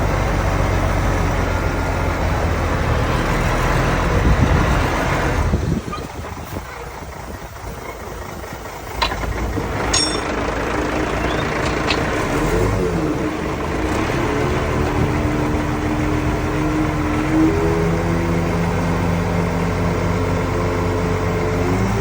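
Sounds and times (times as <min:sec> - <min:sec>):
heavy diesel engine revving: 0:00.0 - 0:22.0
sharp metal clinks: 0:09.0 - 0:10.6.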